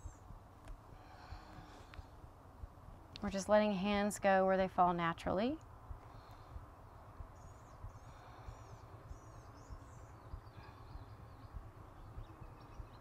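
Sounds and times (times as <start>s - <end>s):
small birds chirping: 0.0s - 0.4s, 6.0s - 13.0s
low steady rumble: 0.0s - 13.0s.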